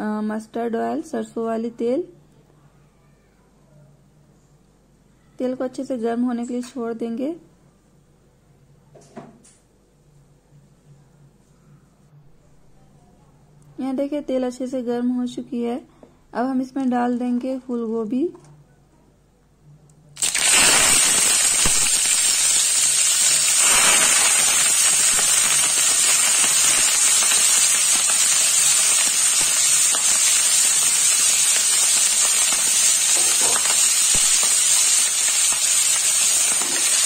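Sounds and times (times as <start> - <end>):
vegetables sizzling in hot oil: 20.2 - 37.0.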